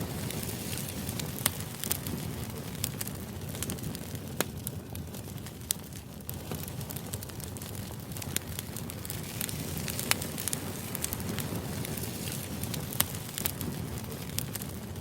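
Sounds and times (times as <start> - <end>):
crackling ticks: 5.4 - 14.8.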